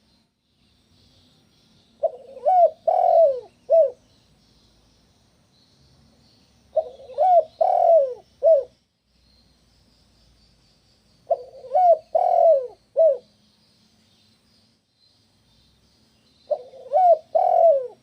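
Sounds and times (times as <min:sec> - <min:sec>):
dove cooing: 0:02.0 - 0:04.0, 0:06.7 - 0:08.7, 0:11.3 - 0:13.3, 0:16.5 - 0:18.0.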